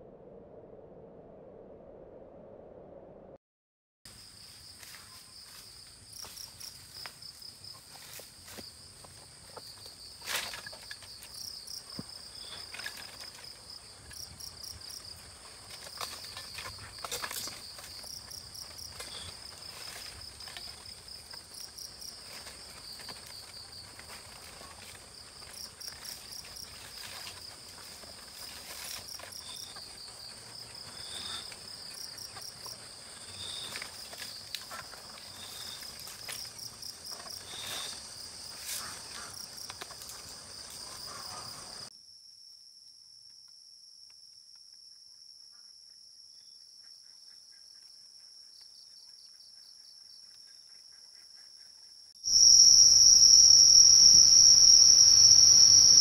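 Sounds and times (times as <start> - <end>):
crickets trilling: 4.1 - 41.9, 52.2 - 56.0
insect chirps: 4.1 - 56.0
twigs crackling: 9.8 - 40.9.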